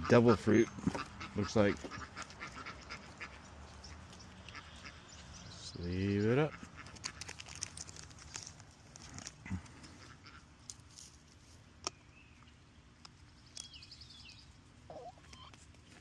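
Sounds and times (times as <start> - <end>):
bird chirp and trill: 0.0 - 6.9, 11.8 - 16.0
cards clicking and rustling: 6.8 - 9.4.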